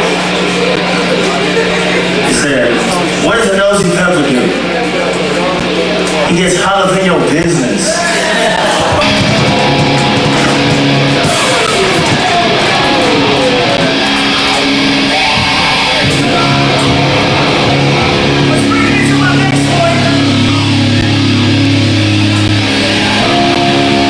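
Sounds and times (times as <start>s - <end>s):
distorted electric guitars: 0.0s - 24.0s
punk band playing live: 8.2s - 24.0s.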